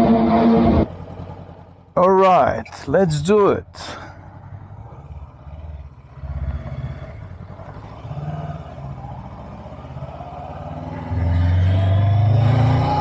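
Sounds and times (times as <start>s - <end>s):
motorcycle engine idling: 0.9s - 6.3s.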